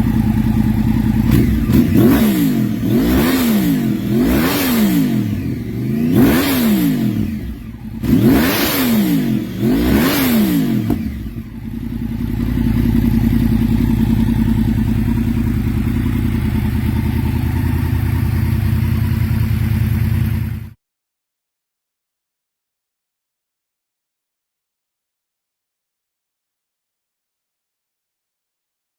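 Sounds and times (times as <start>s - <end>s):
motorcycle engine revving and idling: 0.0s - 20.8s.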